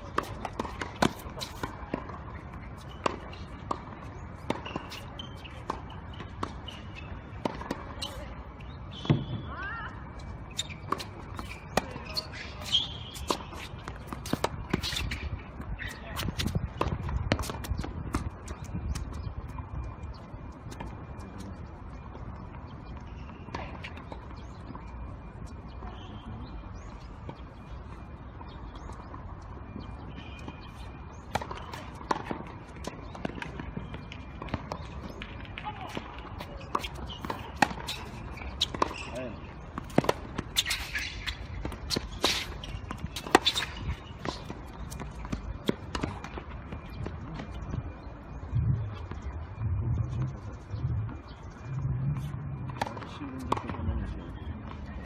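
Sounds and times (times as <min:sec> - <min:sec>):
tennis ball struck and bouncing: 0:00.1 - 0:06.7, 0:31.3 - 0:39.1, 0:39.8 - 0:47.8, 0:52.2 - 0:53.9
low rumble: 0:48.6 - 0:52.8.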